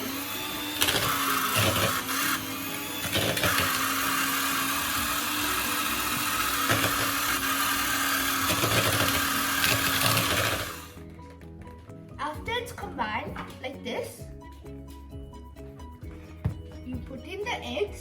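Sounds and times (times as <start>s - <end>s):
electric mixer whirring: 0.0s - 11.1s.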